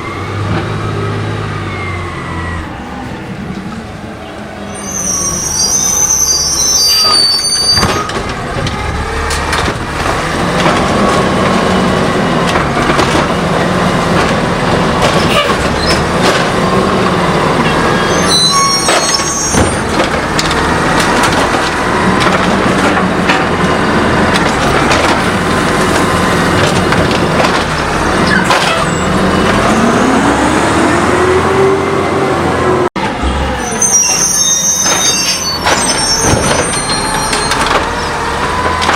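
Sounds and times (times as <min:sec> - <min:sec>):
garbage truck engine running: 0:00.0 - 0:04.7, 0:06.7 - 0:38.9
short high squeals: 0:04.7 - 0:08.2, 0:17.9 - 0:19.7, 0:33.6 - 0:38.2.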